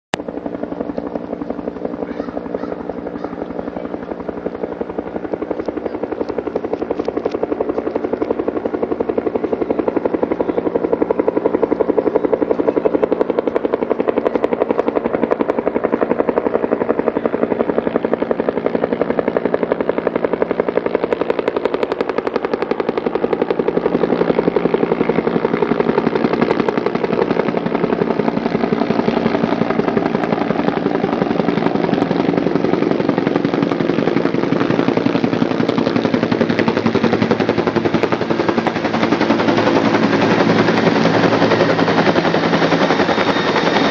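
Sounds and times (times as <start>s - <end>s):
helicopter rotor chopping: 0.1s - 43.9s
turbine rumble: 0.2s - 43.9s.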